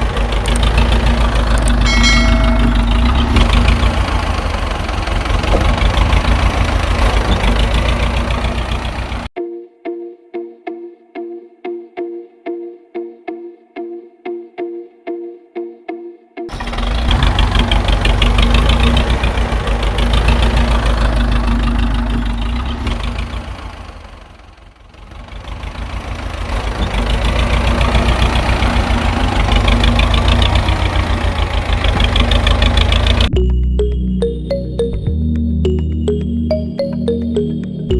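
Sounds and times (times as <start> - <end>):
tractor engine idling: 0.0 - 9.3, 16.5 - 33.3.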